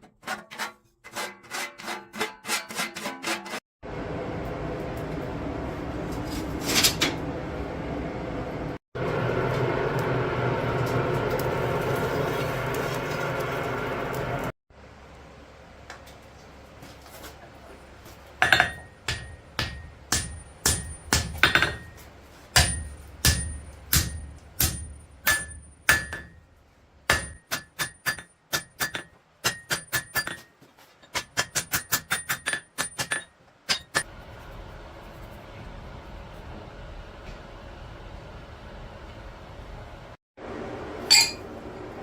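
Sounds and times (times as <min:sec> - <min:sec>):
hammer striking steel on anvil: 0:18.4 - 0:26.5, 0:27.1 - 0:30.5, 0:31.1 - 0:34.1, 0:41.0 - 0:41.5.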